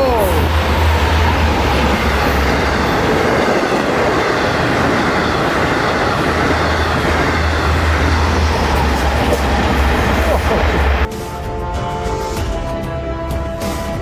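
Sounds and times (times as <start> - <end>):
train wheels rumbling on rails: 0.0 - 11.2.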